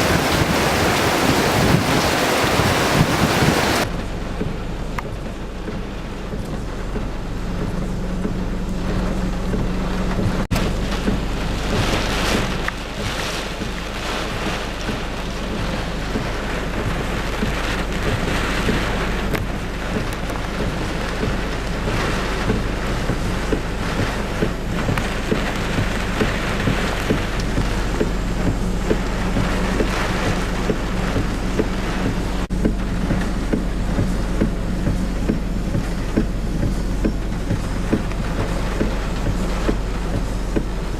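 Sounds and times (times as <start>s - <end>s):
gusting wind: 0.0s - 4.3s
heavy rain: 0.0s - 40.9s
low rumble: 0.0s - 40.9s
raindrops ticking: 0.0s - 40.9s.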